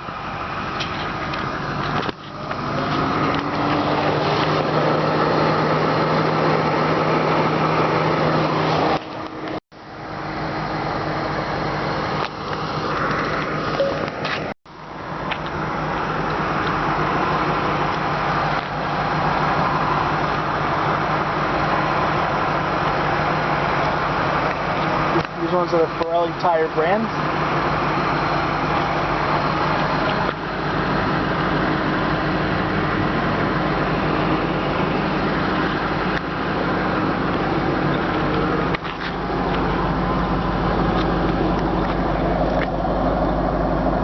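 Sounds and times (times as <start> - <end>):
car engine idling: 0.0 - 44.0
outdoor background noise: 0.0 - 44.0.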